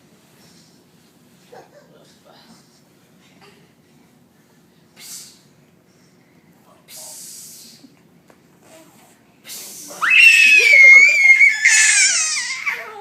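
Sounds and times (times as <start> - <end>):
baby squealing: 10.0 - 13.0.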